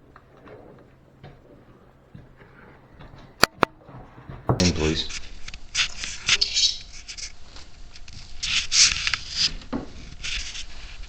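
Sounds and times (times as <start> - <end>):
rustling and scuffing: 0.0 - 11.0
short knock: 3.4 - 5.2.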